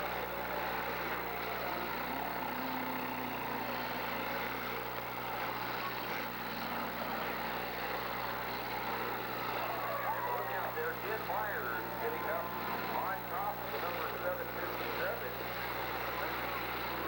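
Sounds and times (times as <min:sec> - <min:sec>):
car engines running: 0:00.0 - 0:17.0.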